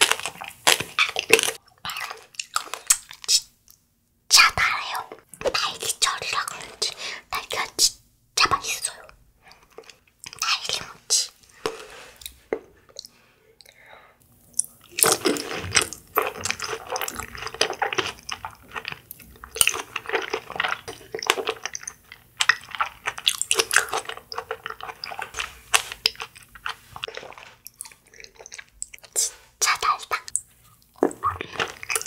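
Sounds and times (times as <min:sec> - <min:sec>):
chewing mouth sounds: 0:14.5 - 0:32.0.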